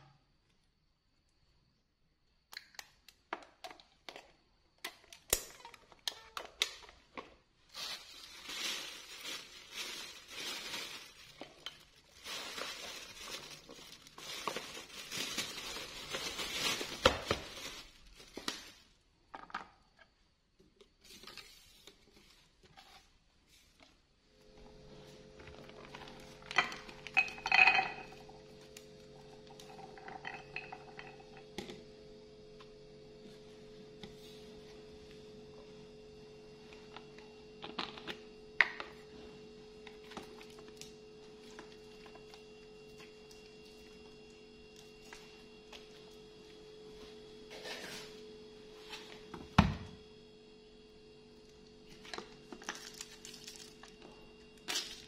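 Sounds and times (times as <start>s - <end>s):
peanuts rattling onto ceramic plate: 26.6s - 28.2s.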